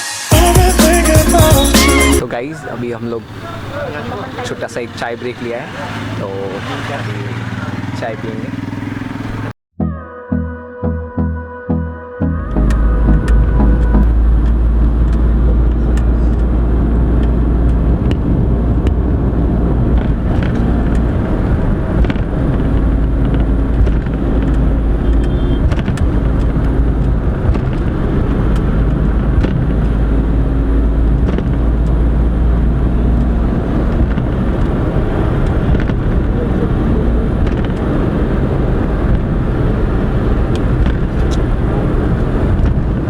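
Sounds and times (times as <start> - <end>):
car engine and tyre rumble: 2.2 - 9.6, 12.5 - 43.0.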